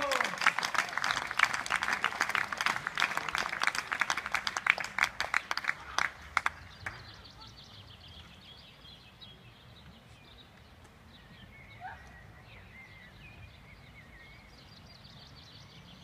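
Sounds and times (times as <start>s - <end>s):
small birds chirping: 6.5s - 16.0s.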